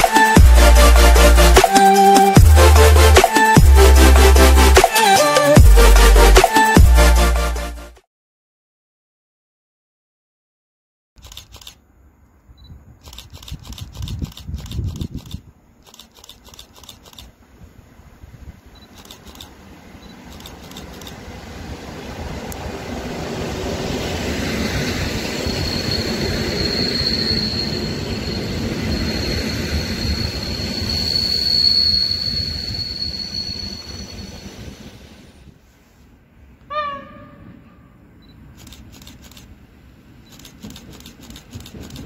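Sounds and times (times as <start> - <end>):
train running noise: 0.0 - 7.2, 13.0 - 35.8, 36.6 - 42.0
high-pitched brake squeal: 24.6 - 35.3.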